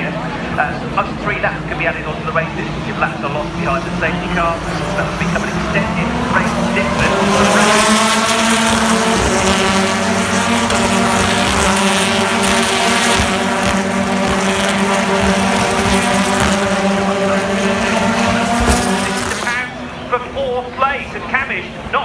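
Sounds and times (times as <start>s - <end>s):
race car engines at high revs: 0.0s - 21.4s.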